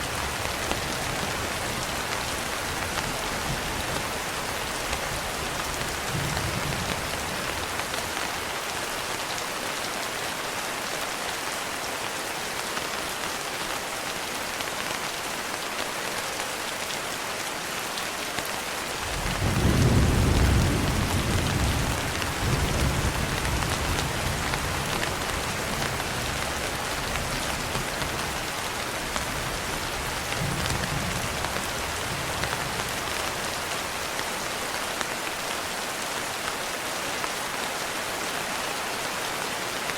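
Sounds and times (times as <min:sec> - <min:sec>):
steady rain falling: 0:00.0 - 0:39.9
thunder rumbling: 0:19.1 - 0:26.0.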